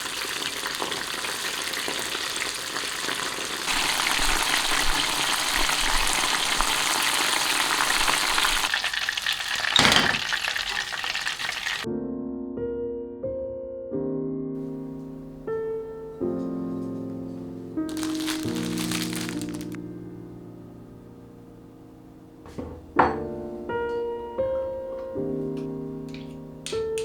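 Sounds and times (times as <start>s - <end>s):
food sizzling in hot oil: 0.0s - 11.9s, 17.9s - 19.8s
piano music: 11.8s - 27.0s.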